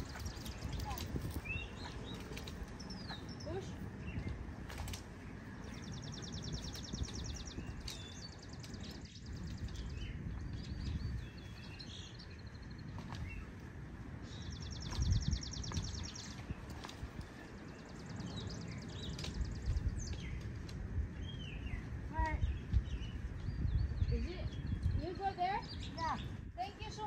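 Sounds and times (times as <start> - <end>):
small songbirds chirping: 0.0 - 27.0
wind buffeting microphone: 0.0 - 27.0.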